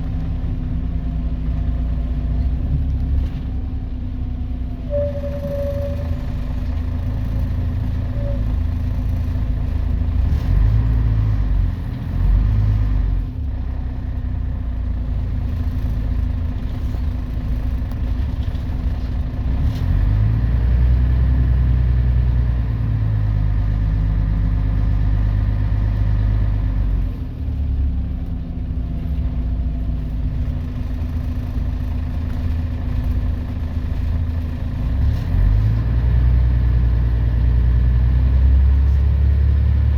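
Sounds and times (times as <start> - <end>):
diesel bus engine running: 0.0 - 39.9.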